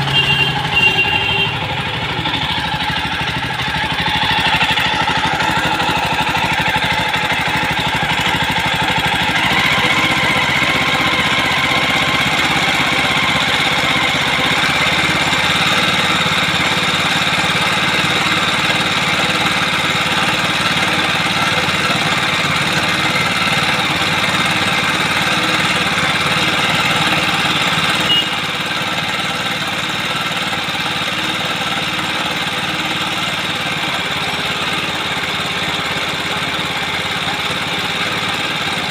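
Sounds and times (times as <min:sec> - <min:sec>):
single-cylinder engine running: 0:00.0 - 0:38.9.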